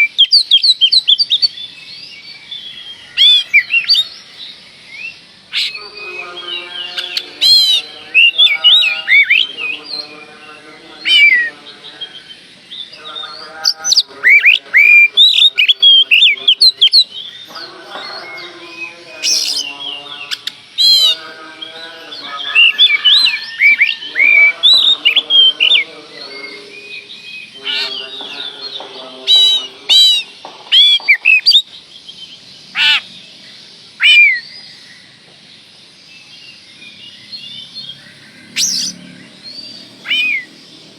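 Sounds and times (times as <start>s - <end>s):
bird singing whistles: 0.0s - 4.1s, 4.9s - 10.1s, 11.0s - 11.6s, 18.1s - 21.2s, 22.2s - 33.0s, 34.0s - 34.8s, 37.1s - 40.6s.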